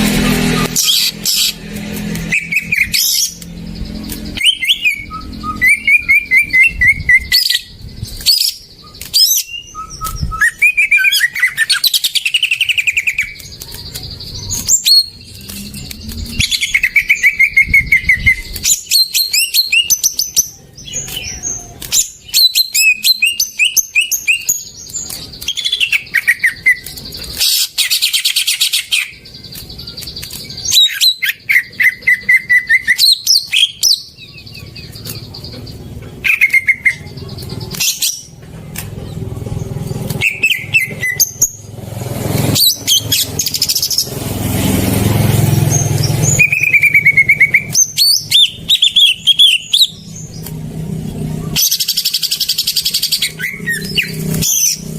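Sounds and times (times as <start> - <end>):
harsh noisy bird calls: 0.0 - 54.9
bird singing whistles and chirps: 2.2 - 38.3, 40.0 - 41.7, 45.5 - 50.4, 51.4 - 54.9.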